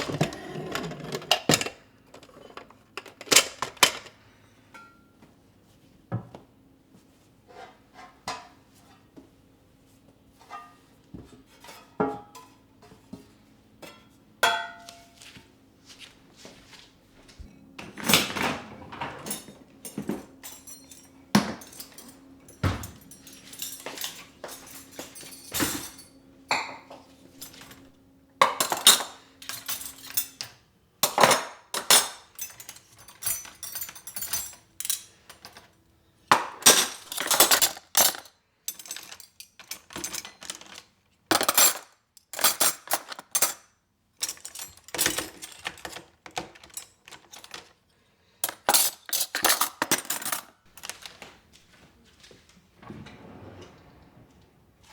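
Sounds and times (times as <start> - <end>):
dishes and utensils clinking: 0.0 - 5.1, 18.1 - 47.7, 48.4 - 51.3.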